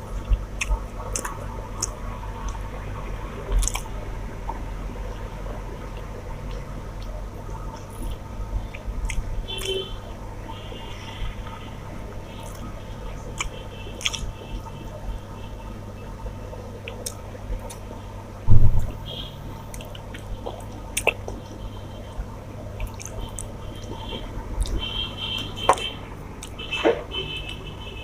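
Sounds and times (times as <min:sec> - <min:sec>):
wet squishing of rice and curry: 0:00.0 - 0:18.4, 0:19.5 - 0:28.0
steady low hum: 0:00.0 - 0:28.0
chewing: 0:00.2 - 0:02.6, 0:03.5 - 0:03.9, 0:06.0 - 0:09.8, 0:13.3 - 0:14.7, 0:16.8 - 0:17.9, 0:19.7 - 0:21.6
low thump: 0:18.5 - 0:19.0.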